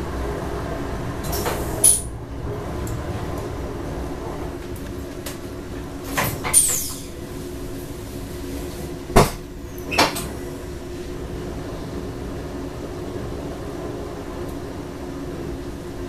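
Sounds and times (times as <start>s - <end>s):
train steady hum: 0.0s - 16.0s
short falling squeak: 6.4s - 7.1s.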